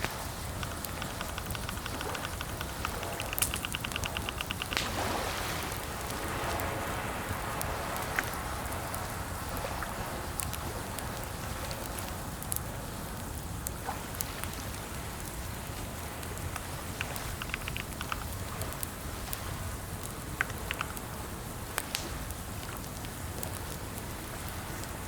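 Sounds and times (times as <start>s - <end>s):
steady background hiss: 0.0s - 25.0s
computer keyboard typing: 0.3s - 4.8s, 16.6s - 18.3s, 20.4s - 21.0s.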